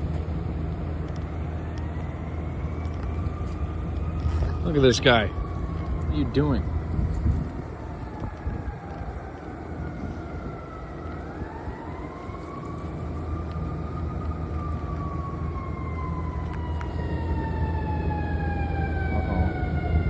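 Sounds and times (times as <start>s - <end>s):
emergency siren wailing: 0.0s - 20.0s.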